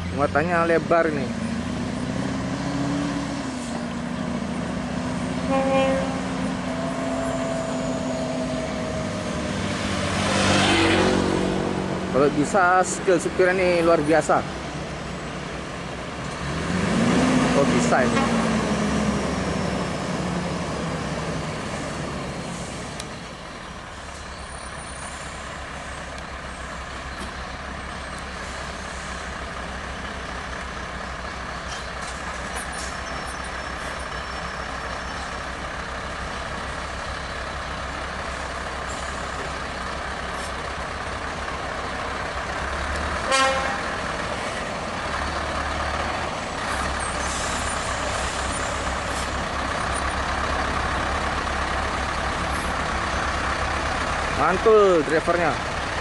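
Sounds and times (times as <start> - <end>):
heavy truck engine running: 0.0 - 56.0
truck horn toot: 5.4 - 8.8, 18.0 - 18.5, 43.2 - 44.0.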